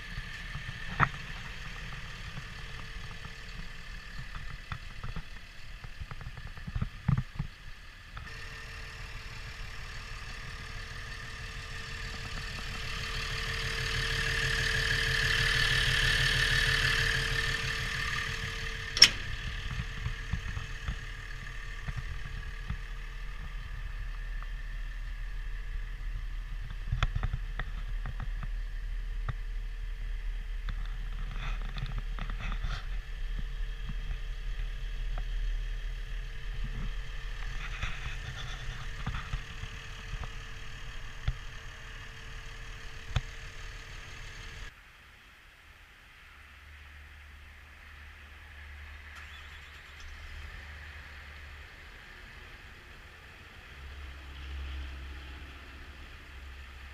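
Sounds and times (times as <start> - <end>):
low hum: 0.0 - 44.7
bulldozer diesel engine running: 0.0 - 44.8.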